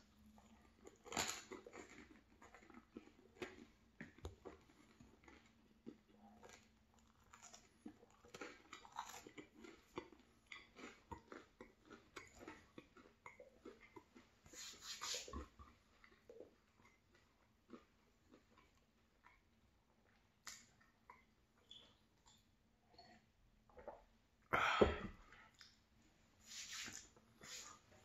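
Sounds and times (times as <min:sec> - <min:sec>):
close-miked chewing: 0:00.0 - 0:23.9.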